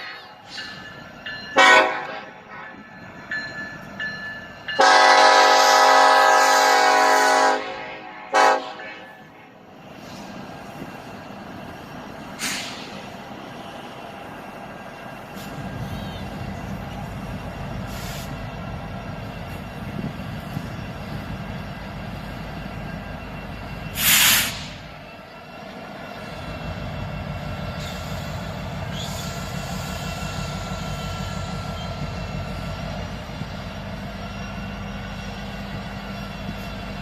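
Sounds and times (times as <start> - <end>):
train rumbling past: 0.0 - 37.0
loud hiss: 12.3 - 13.2, 23.9 - 24.9.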